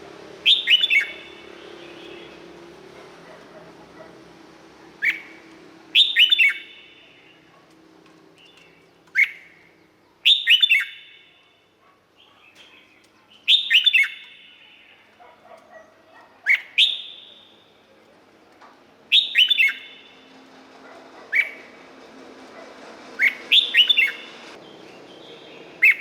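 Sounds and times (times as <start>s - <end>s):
bird singing whistled notes: 0.4s - 2.5s, 5.0s - 7.4s, 8.4s - 9.6s, 10.2s - 11.4s, 12.6s - 15.0s, 16.5s - 17.8s, 19.1s - 20.3s, 23.2s - 26.0s.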